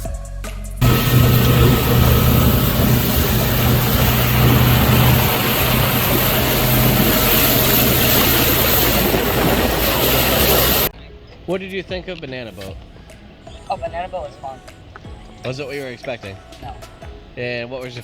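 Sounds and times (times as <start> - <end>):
motorboat engine humming: 0.8 - 10.9
rushing wind and water: 0.8 - 10.9.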